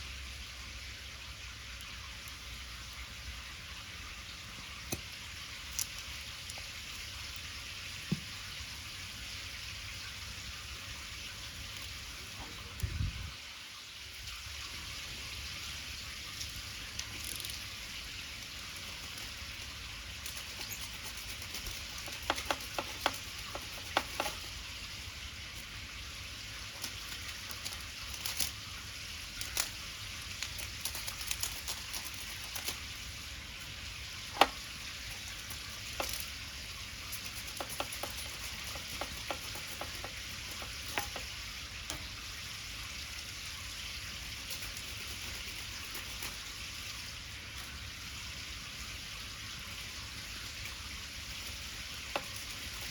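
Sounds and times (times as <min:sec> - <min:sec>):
wood fire crackling and popping: 0:04.8 - 0:08.4, 0:16.4 - 0:42.2.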